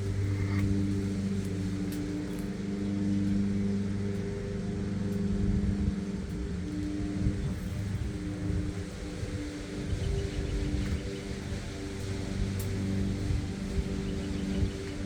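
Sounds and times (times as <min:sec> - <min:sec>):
faint ticks: 0:00.0 - 0:04.3
low machine hum: 0:00.0 - 0:15.0.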